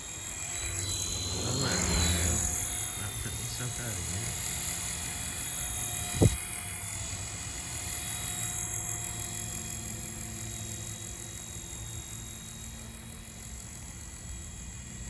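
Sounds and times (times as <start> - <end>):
toy helicopter rotor whining: 0.0 - 15.0
wind rumble on microphone: 6.0 - 6.4.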